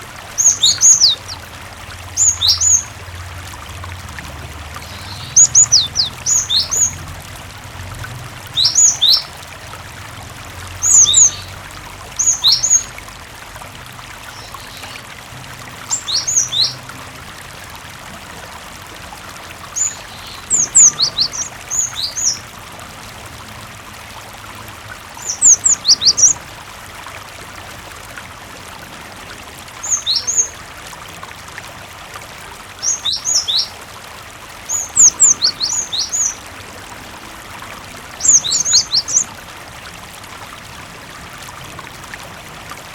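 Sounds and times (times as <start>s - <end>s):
running water: 0.0s - 42.9s
bird singing high notes: 0.4s - 1.4s, 4.8s - 7.0s.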